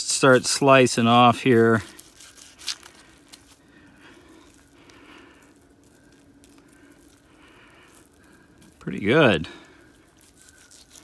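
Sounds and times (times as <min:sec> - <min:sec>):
knife slicing ham: 0:10.2 - 0:11.0.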